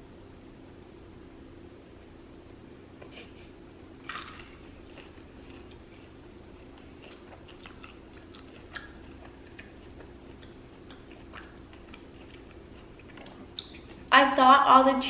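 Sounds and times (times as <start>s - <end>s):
wet mouth clicks chewing: 4.1s - 14.1s.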